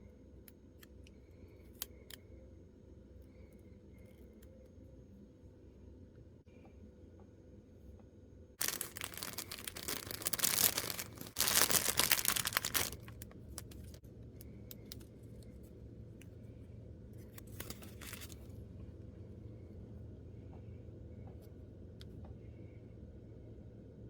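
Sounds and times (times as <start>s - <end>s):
packaging crinkling and clicking: 8.6s - 14.0s, 17.4s - 18.5s
packaging ripping: 8.6s - 14.0s.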